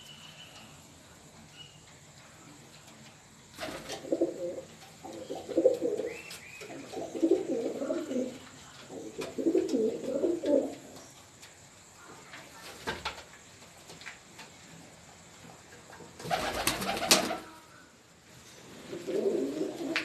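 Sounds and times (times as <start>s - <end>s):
pigeon cooing: 3.7s - 10.8s, 18.9s - 20.0s.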